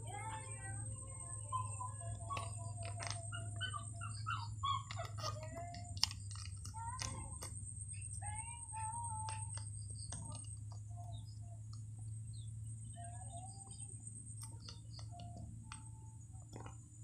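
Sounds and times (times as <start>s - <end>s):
steady low hum: 0.0s - 17.0s
bird chirping: 0.1s - 16.8s
sachets crinkling: 2.3s - 4.2s, 4.8s - 10.8s.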